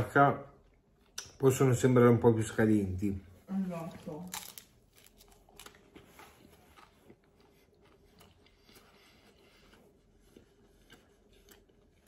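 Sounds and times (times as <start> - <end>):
person chewing: 4.3 - 12.0.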